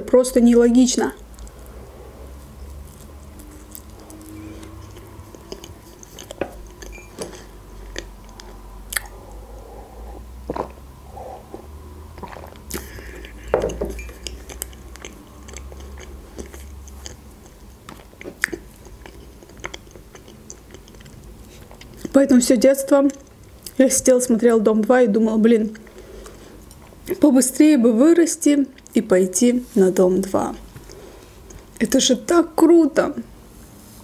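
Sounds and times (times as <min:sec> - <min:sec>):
person chewing: 0:01.2 - 0:22.2, 0:25.7 - 0:27.2, 0:30.6 - 0:31.8
sip from a mug: 0:09.0 - 0:14.2.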